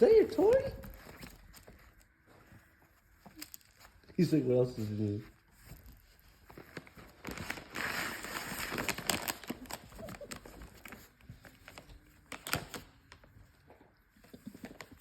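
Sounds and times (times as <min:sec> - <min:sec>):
gift bag rustling and crinkling: 0:03.0 - 0:13.5.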